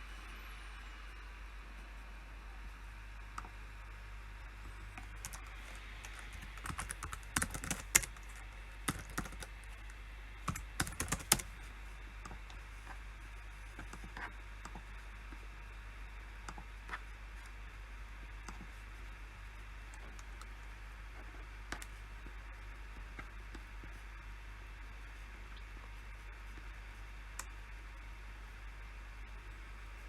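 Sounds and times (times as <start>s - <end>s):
low hum: 0.0s - 30.0s
keyboard typing: 5.0s - 12.6s.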